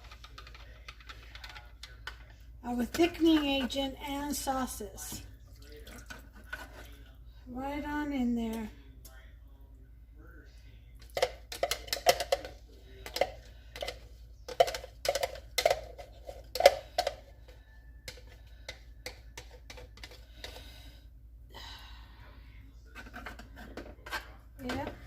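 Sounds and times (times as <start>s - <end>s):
spoon scraping pan: 6.1s - 7.0s, 22.9s - 25.0s.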